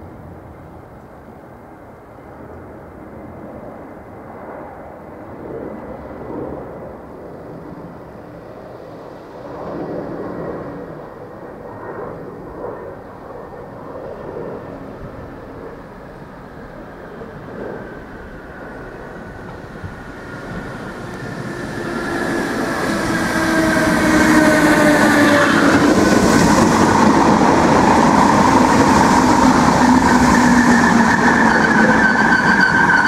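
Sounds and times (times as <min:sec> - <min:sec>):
train wheels rumbling on rails: 0:14.6 - 0:33.0.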